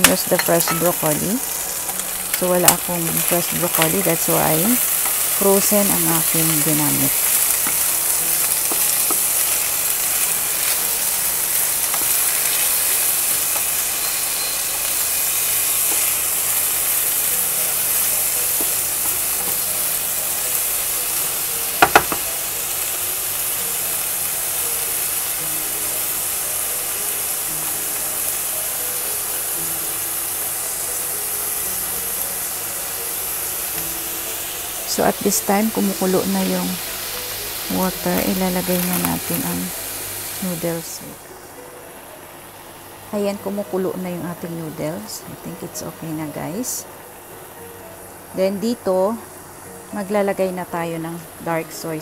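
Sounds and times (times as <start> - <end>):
food sizzling in a frying pan: 0.0 - 52.0.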